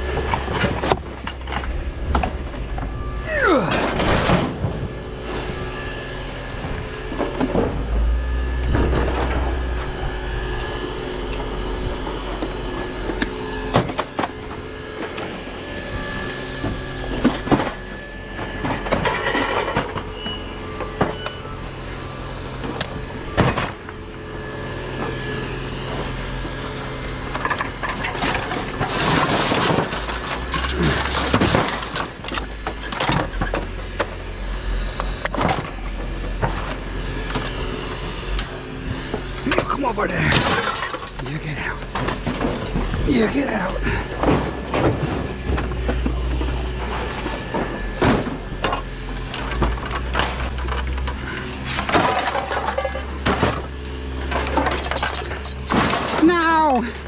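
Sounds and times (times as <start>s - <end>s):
steady low hum: 0.0s - 57.0s
scrap metal knocking and clanking: 34.9s - 56.4s.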